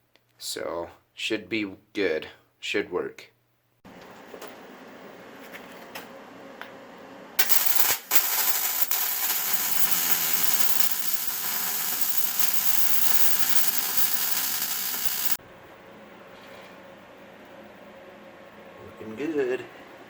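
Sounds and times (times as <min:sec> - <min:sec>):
arc welding hiss: 0:07.4 - 0:15.4.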